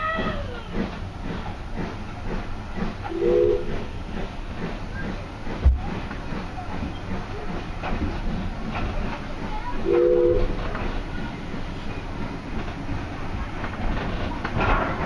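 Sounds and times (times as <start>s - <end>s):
train wheels rumbling on rails: 0.0s - 15.0s
train toot: 3.0s - 4.2s, 9.6s - 12.1s
clicks over rail joints: 13.6s - 15.0s.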